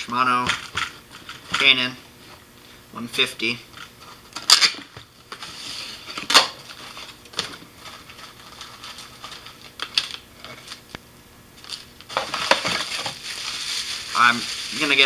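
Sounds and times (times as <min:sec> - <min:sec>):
packaging rustling: 0:06.2 - 0:10.9, 0:11.6 - 0:15.0.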